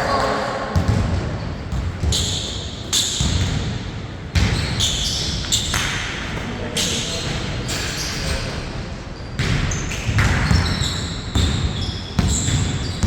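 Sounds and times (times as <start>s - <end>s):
basketball bouncing: 0.8s - 2.4s, 3.1s - 6.0s, 9.4s - 13.0s
shoe squeaks: 4.5s - 5.8s, 6.8s - 13.0s.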